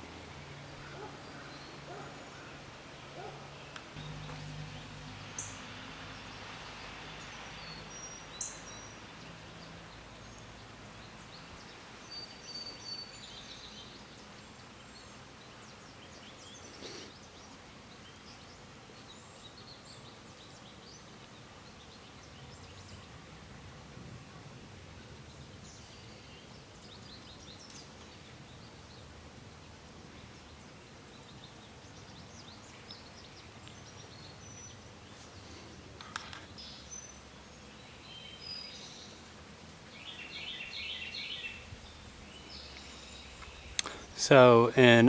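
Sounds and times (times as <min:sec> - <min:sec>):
faint low hum: 0:00.0 - 0:07.4
songbird chirps: 0:00.0 - 0:23.4, 0:25.0 - 0:45.0.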